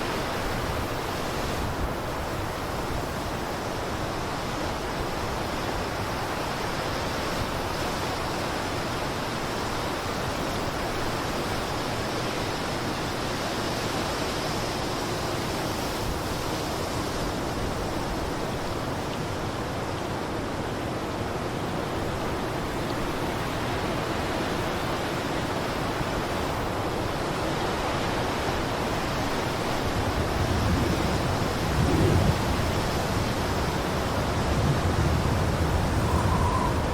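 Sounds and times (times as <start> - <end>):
blizzard wind blowing: 25.8 - 36.9.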